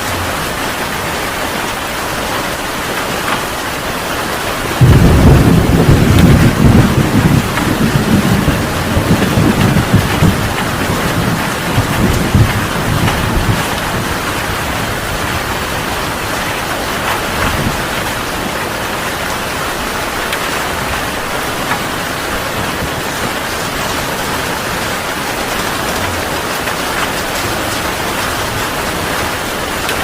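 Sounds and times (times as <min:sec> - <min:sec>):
heavy rain pouring: 0:00.0 - 0:30.0
low thunder rumble: 0:04.7 - 0:19.0.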